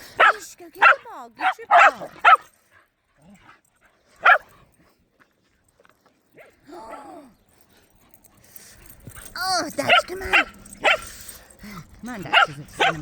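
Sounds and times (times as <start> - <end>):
puppy barking: 0.2 - 2.5, 4.2 - 4.5, 9.8 - 11.1, 12.2 - 13.0.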